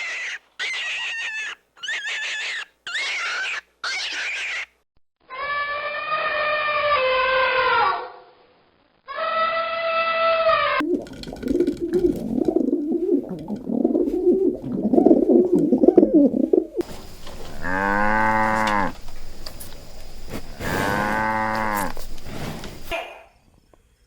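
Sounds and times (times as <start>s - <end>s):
pigeons cooing: 11.4s - 19.4s
cow mooing: 17.4s - 19.0s, 20.6s - 22.0s.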